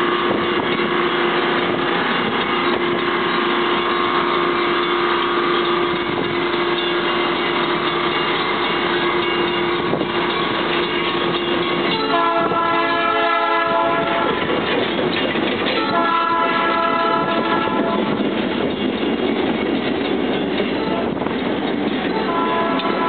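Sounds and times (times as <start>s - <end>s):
train cars rumbling past: 0.0s - 23.0s
train air horn chord: 12.0s - 14.4s, 15.8s - 18.2s, 22.2s - 23.0s.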